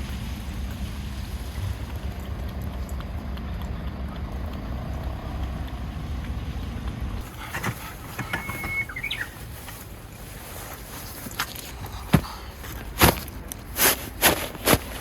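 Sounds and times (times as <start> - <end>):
high whistle sliding upward: 8.3 - 9.3.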